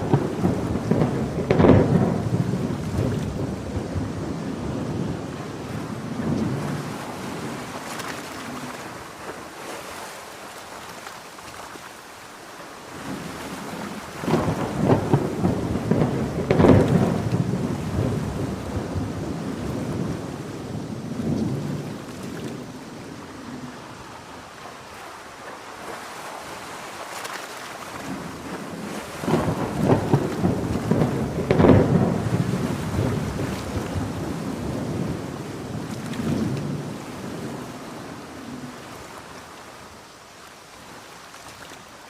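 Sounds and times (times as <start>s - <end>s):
rolling thunder: 0.0s - 7.8s, 13.0s - 24.4s, 28.0s - 38.8s
heavy rain falling: 0.0s - 9.7s, 10.3s - 41.1s.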